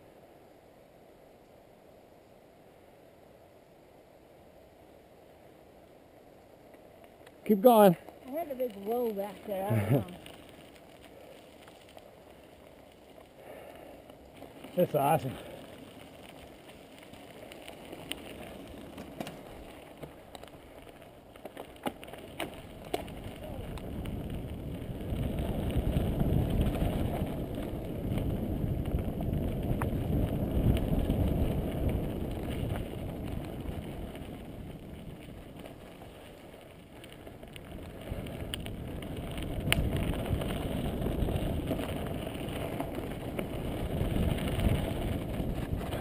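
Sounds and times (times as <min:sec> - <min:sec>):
bike tyre rumble on dirt: 0:01.9 - 0:46.0
bike rattles and clicks: 0:06.7 - 0:46.0
wind buffeting microphone: 0:22.7 - 0:36.4, 0:37.0 - 0:46.0.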